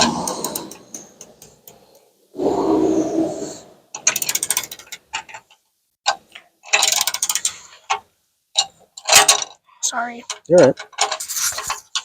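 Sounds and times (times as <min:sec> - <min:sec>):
rough noise: 0:02.2 - 0:04.7
ratchet wrench clicking: 0:04.0 - 0:04.9, 0:06.7 - 0:07.5.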